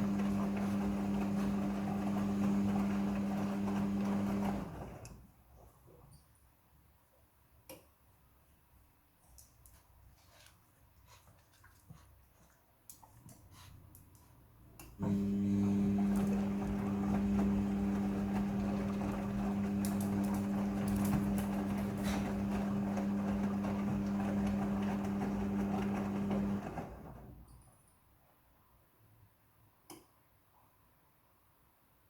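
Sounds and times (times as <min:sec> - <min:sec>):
washing machine motor hum: 0:00.0 - 0:05.2, 0:14.6 - 0:27.5.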